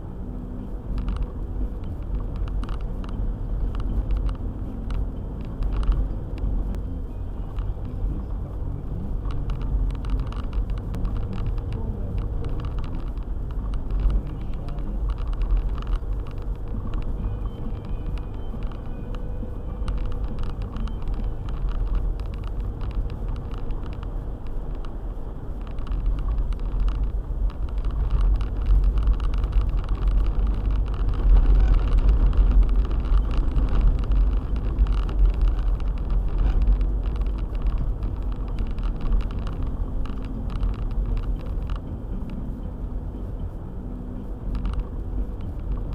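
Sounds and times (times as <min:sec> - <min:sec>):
car engine and tyres rumbling: 0:00.0 - 0:45.9
small clicks and knocks: 0:00.9 - 0:06.8, 0:07.5 - 0:43.6, 0:44.2 - 0:45.9.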